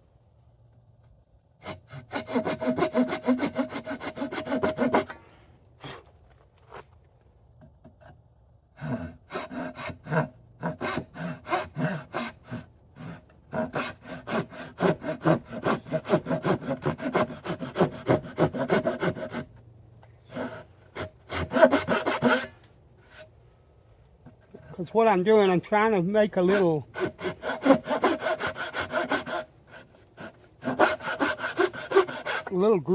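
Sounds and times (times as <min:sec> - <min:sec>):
hand saw cutting wood: 0:01.6 - 0:05.2, 0:08.8 - 0:19.5, 0:20.2 - 0:23.3, 0:26.4 - 0:32.7.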